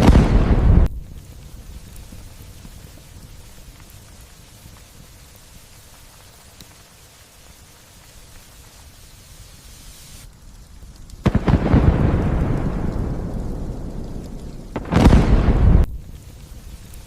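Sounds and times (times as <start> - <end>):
thunderclap with deep rumble: 0.0 - 3.5, 11.2 - 17.0
light rain hiss: 0.0 - 17.0.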